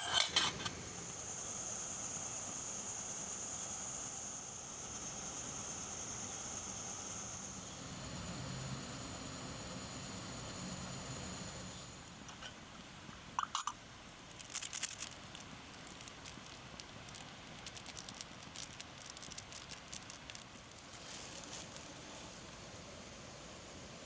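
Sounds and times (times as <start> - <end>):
campfire crackling and popping: 14.3 - 21.9.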